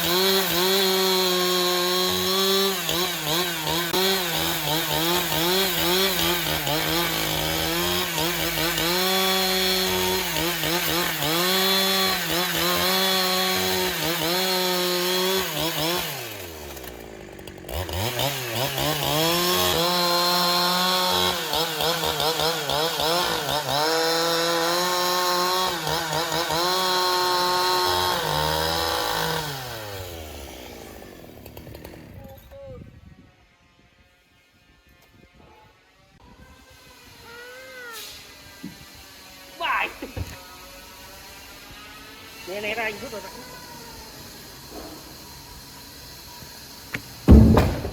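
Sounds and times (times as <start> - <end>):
chainsaw cutting wood: 0.0 - 32.4, 36.2 - 47.9.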